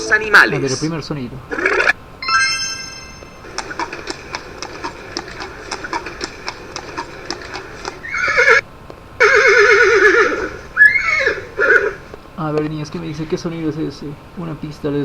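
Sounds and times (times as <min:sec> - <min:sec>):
horse neighing: 0:01.5 - 0:02.0, 0:03.4 - 0:08.6, 0:09.2 - 0:12.1
ringing chime: 0:02.2 - 0:03.5
horse hooves clip-clopping: 0:03.2 - 0:13.1.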